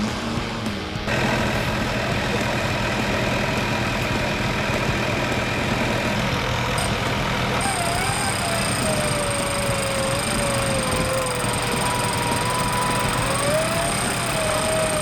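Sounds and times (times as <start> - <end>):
off-road vehicle engine running: 0.0 - 15.0
thin wavering tone: 6.8 - 15.0.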